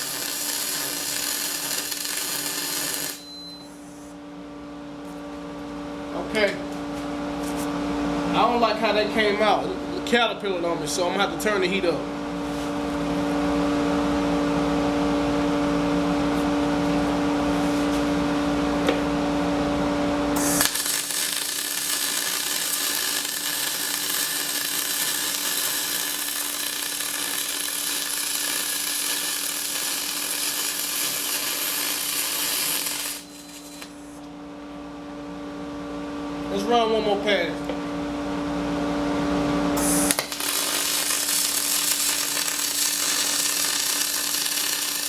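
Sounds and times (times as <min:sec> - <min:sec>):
welding arc hiss: 0:00.0 - 0:04.1, 0:20.4 - 0:34.2, 0:39.8 - 0:45.0.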